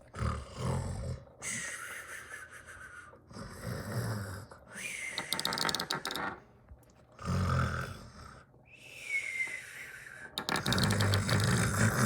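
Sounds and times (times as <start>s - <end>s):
person making snoring noises: 11.4s - 12.0s.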